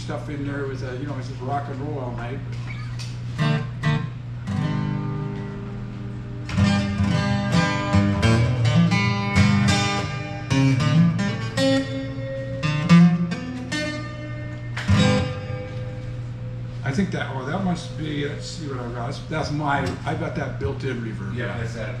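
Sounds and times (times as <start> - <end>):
acoustic guitar strumming: 2.5 - 21.9.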